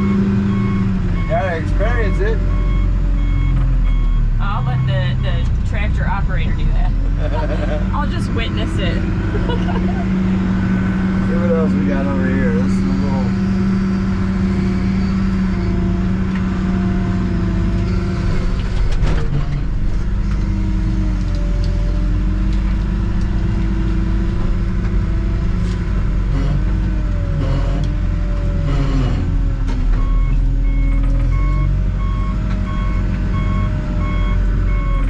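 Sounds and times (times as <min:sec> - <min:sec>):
reverse alarm beeping: 0:00.0 - 0:05.4, 0:30.0 - 0:35.0
backhoe engine running: 0:00.0 - 0:35.0.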